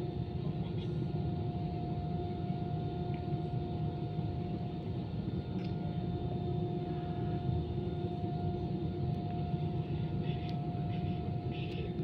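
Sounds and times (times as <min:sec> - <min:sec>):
constant high whine: 0:00.0 - 0:12.0
airplane cabin rumble: 0:00.2 - 0:12.0.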